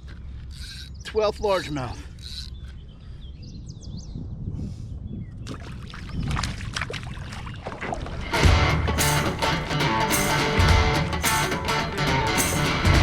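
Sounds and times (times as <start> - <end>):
water splashing: 5.5 - 9.5.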